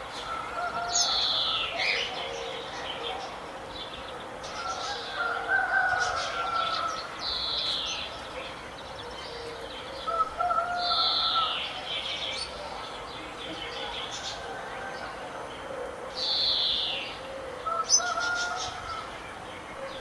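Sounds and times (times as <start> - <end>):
birds singing and chirping: 0.0 - 20.0.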